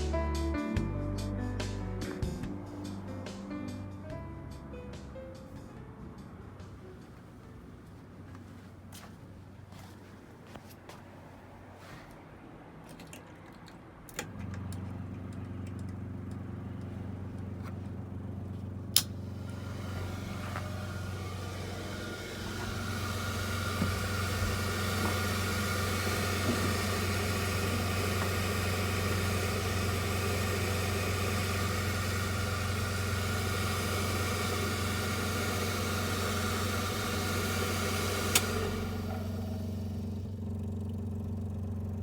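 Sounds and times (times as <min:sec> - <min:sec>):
two-stroke engine idling: 0:14.6 - 0:42.0.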